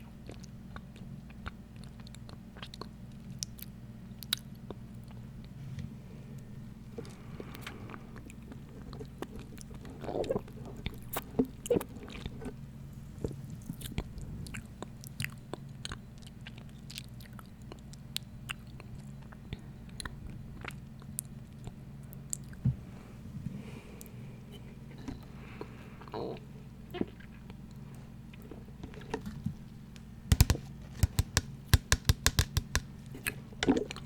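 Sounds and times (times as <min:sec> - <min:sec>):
fingernails tapping and scratching: 0:30.3 - 0:33.8.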